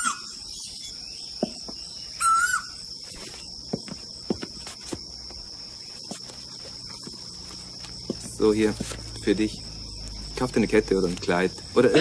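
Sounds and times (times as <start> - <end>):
high-pitched insect drone: 0.0 - 12.0
bird rising call: 2.1 - 2.8.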